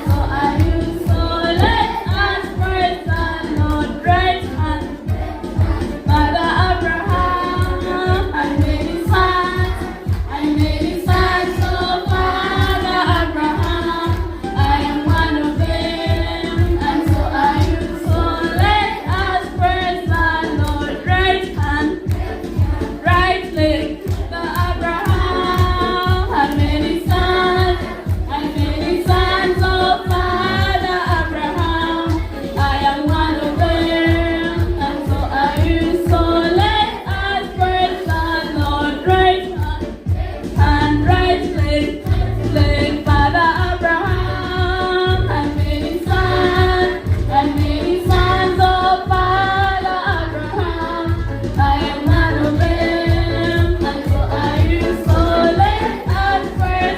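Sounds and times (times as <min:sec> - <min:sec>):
group of voices singing: 0:00.0 - 0:56.9
choir singing: 0:08.8 - 0:19.6, 0:51.9 - 0:56.9.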